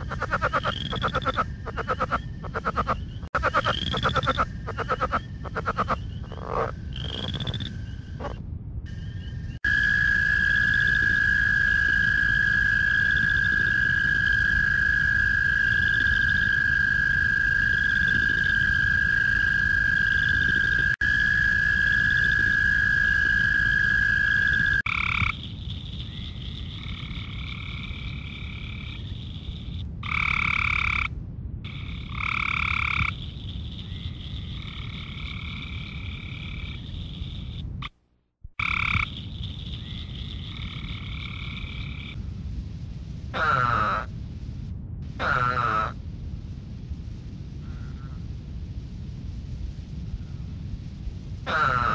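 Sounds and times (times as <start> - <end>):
frog repeated call notes: 0.0 - 8.4, 9.6 - 31.1, 31.7 - 42.2, 43.4 - 44.1, 45.2 - 46.0, 51.5 - 51.9
frog high trill: 51.5 - 51.9.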